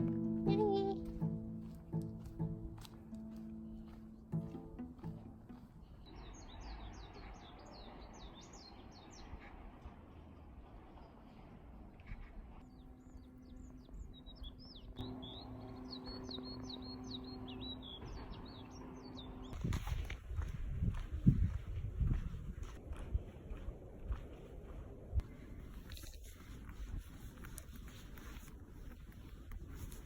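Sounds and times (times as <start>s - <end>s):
small songbirds chirping: 5.5s - 9.6s, 12.2s - 19.7s.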